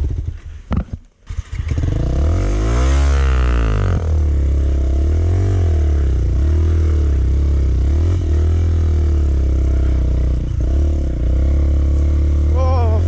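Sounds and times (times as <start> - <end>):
dirt bike engine revving: 0.0 - 13.0
person talking: 12.5 - 13.0.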